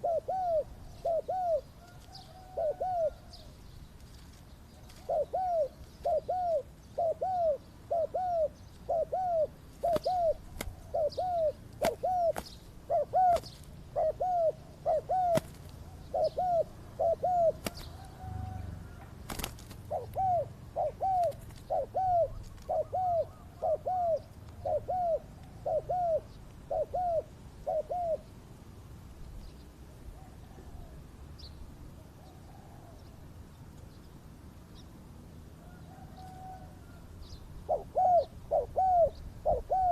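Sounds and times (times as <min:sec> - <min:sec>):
dove cooing: 0:00.0 - 0:03.6, 0:04.8 - 0:28.4, 0:35.6 - 0:37.0, 0:37.6 - 0:39.9.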